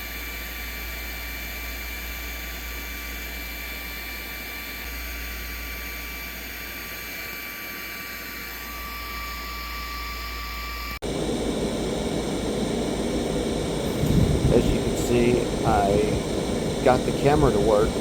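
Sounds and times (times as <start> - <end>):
low electrical hum: 8.9 - 18.0
loud rough noise: 11.1 - 18.0.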